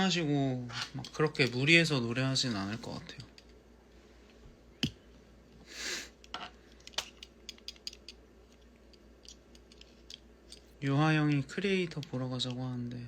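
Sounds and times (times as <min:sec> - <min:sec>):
small objects clicking and tapping: 0:06.2 - 0:12.7.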